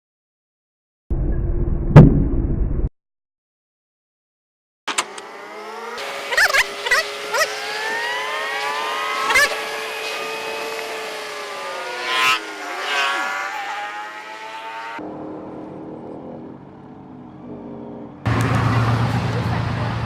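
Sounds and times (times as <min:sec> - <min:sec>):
vehicle engine running: 0:04.9 - 0:20.0.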